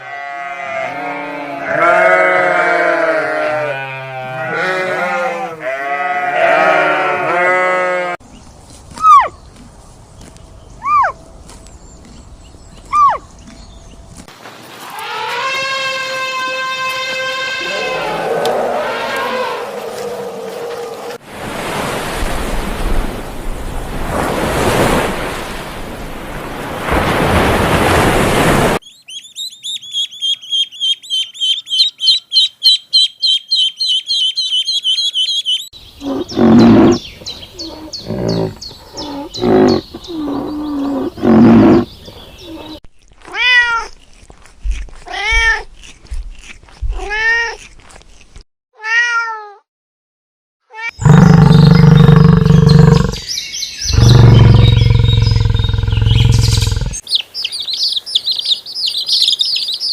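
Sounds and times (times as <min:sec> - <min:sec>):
sheep bleating: 0:00.0 - 0:08.2
held animal call: 0:14.8 - 0:21.2, 0:36.0 - 0:42.8, 0:50.8 - 0:53.3, 0:53.9 - 0:57.0
waves washing in: 0:19.8 - 0:28.8.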